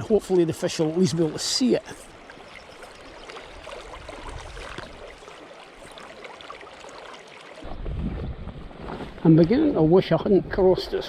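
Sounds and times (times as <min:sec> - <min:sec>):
river current rushing: 0:00.0 - 0:07.7.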